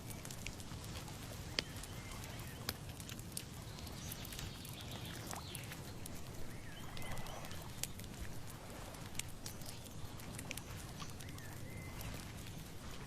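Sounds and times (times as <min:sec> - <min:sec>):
sharp clicks and crackles: 0:00.0 - 0:13.0
faint bird chirps: 0:03.6 - 0:08.0, 0:09.4 - 0:12.7.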